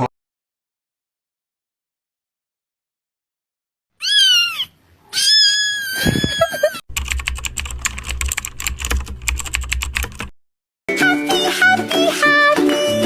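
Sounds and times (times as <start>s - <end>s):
cat meowing: 4.0s - 6.8s
rapid keyboard typing: 6.9s - 10.3s.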